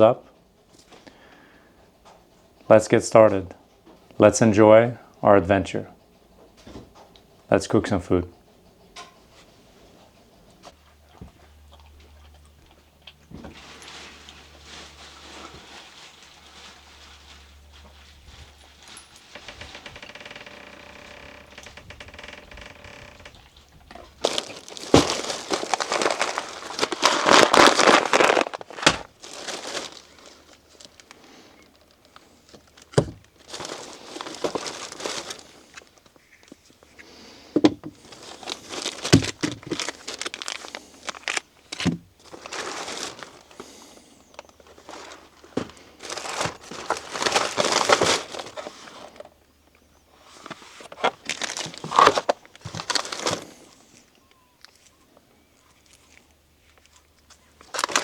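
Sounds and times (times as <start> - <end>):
packaging crinkling: 13.6 - 36.8, 37.9 - 49.4, 50.2 - 58.0.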